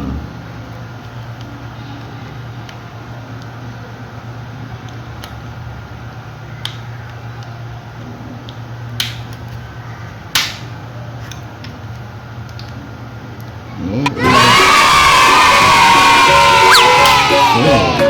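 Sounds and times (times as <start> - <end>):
steady low hum: 0.0 - 18.0
sharp plastic clicks: 6.6 - 9.6, 10.3 - 12.8.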